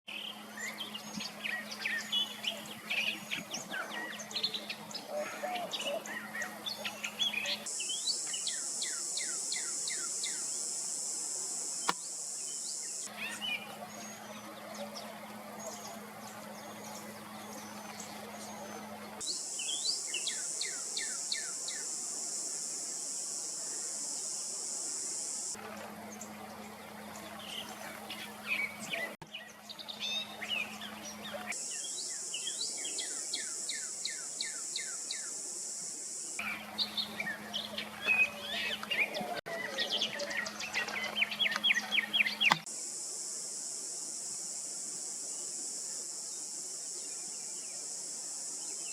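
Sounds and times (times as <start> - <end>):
insects buzzing: 0.1 - 48.9
other bird calls: 36.4 - 42.7.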